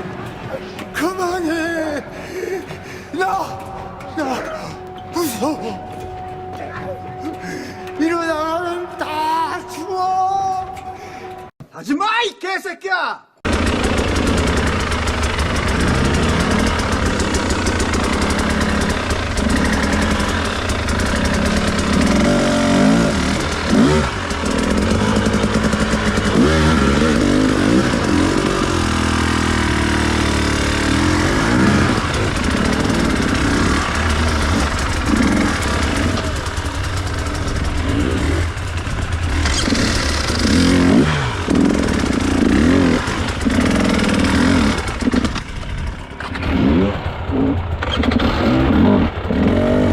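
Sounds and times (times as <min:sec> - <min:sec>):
dirt bike engine revving: 0:13.5 - 0:49.9.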